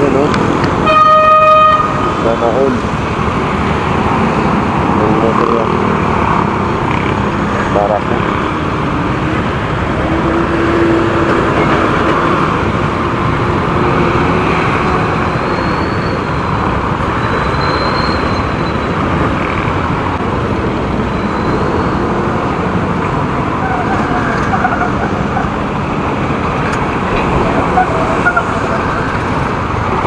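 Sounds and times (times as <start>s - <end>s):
vehicles passing: 0.0s - 30.0s
wind on microphone: 26.2s - 30.0s.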